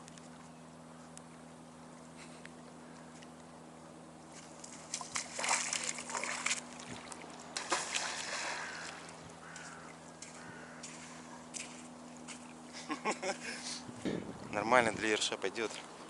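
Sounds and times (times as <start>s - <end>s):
faint low hum: 0.0s - 16.0s
water splashing: 4.5s - 12.6s.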